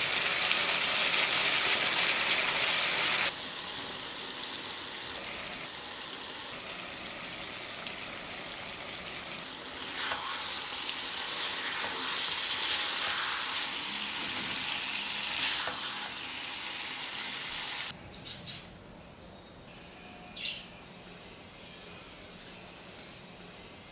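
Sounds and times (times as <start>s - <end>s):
chicken sizzling in a pan: 0.0s - 17.9s.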